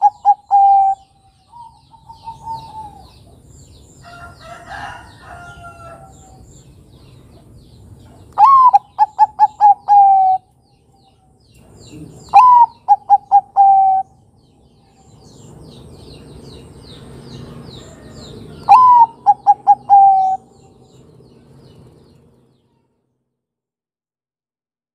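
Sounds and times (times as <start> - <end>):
dove cooing: 0.0 - 3.4, 8.4 - 10.5, 11.8 - 14.2, 17.5 - 20.8
small birds chirping: 0.0 - 22.9.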